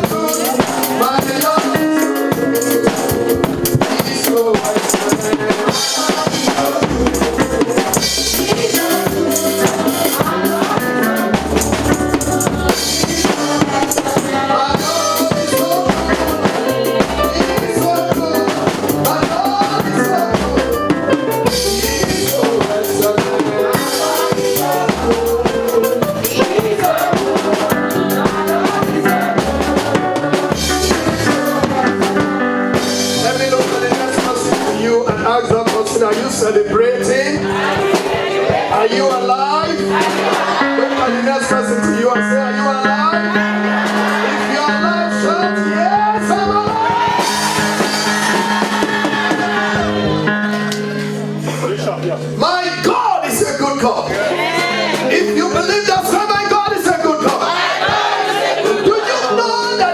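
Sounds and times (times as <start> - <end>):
church band praise music: 0.0 - 59.9
drum kit beat: 0.0 - 59.9.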